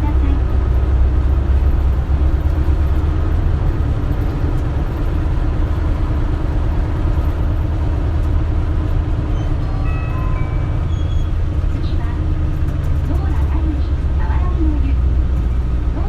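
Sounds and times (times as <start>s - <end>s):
bus engine running: 0.0s - 16.0s.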